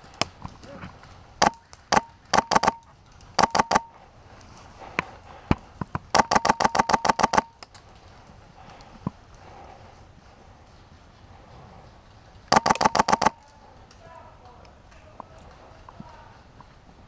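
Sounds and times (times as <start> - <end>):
airsoft gun shots: 1.4 - 2.8, 3.4 - 3.9, 6.1 - 7.5, 12.5 - 13.4
rapid burst of shots: 1.4 - 2.8, 3.4 - 3.9, 6.1 - 7.6, 12.5 - 13.4.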